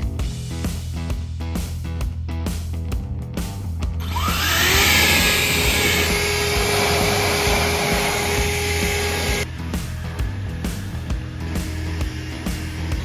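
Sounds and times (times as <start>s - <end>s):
electric air blower: 4.0s - 13.0s.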